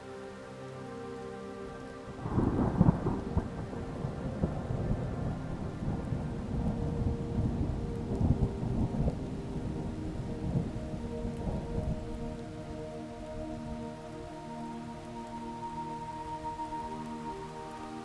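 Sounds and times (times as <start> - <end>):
soft music with held tones: 0.0 - 18.0.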